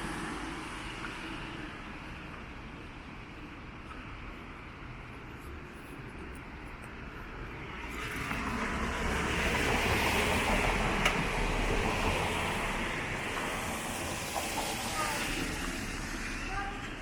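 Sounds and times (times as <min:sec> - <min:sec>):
tyre hiss on wet street: 0:00.0 - 0:03.2, 0:07.3 - 0:17.0.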